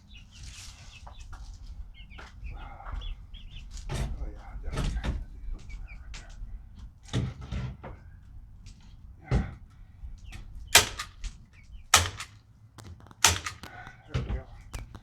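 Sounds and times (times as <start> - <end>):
sharp knocks and bangs: 10.8 - 11.2, 12.0 - 13.9.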